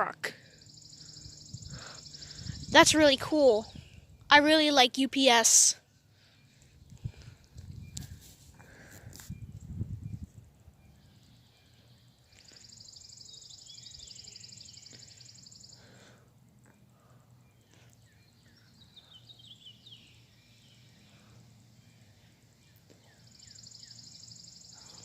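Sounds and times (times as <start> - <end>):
short bird chirps: 10.9 - 16.0.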